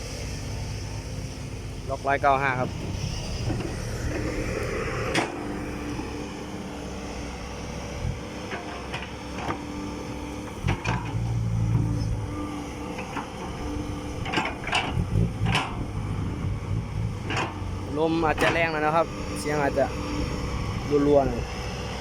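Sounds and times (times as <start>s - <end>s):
truck engine droning: 0.0s - 22.0s
wind buffeting microphone: 13.8s - 21.6s.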